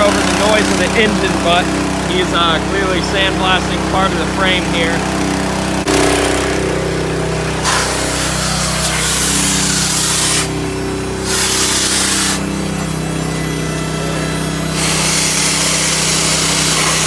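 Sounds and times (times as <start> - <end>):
engine droning: 0.0 - 17.0
sandblaster hissing on metal: 7.6 - 10.6, 11.2 - 17.0.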